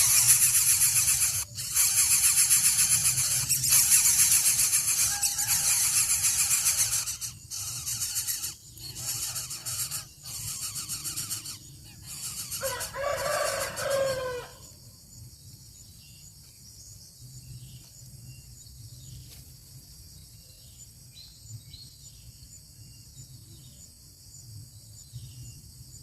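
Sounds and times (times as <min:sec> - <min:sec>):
drawn-out bird call: 0:00.0 - 0:14.5.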